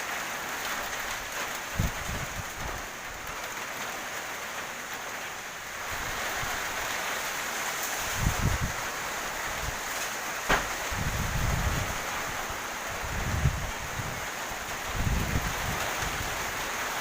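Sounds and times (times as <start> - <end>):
heavy rain falling: 0.0 - 17.0
wind buffeting microphone: 1.7 - 3.2, 8.0 - 9.9, 10.5 - 16.6.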